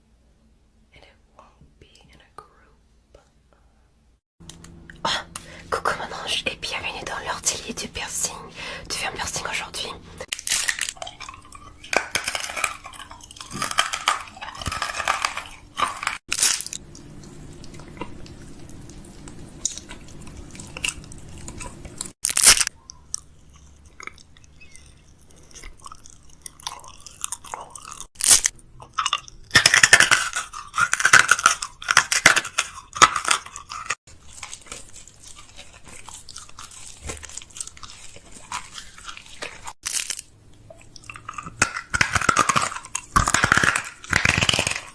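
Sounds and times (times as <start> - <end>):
snack packaging crackling: 9.2 - 44.9.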